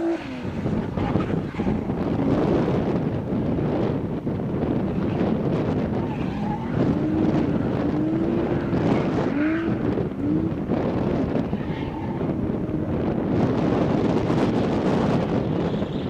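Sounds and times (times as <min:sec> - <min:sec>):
wind noise on microphone: 0:00.0 - 0:16.0
car engine revving: 0:04.7 - 0:15.4.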